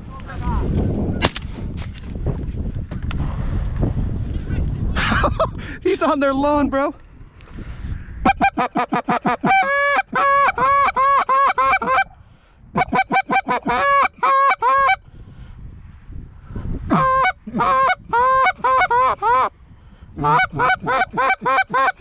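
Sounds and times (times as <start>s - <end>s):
geese honking and clucking: 8.2s - 12.2s, 12.8s - 15.0s, 16.9s - 19.5s, 20.2s - 22.0s.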